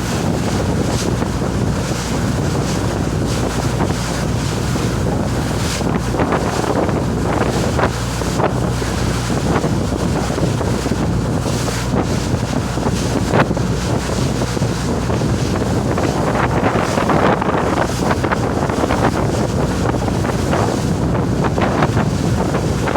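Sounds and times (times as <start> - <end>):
boat engine drone: 0.0 - 22.9
water splashing past hull: 0.0 - 22.9
wind buffeting microphone: 0.0 - 22.9.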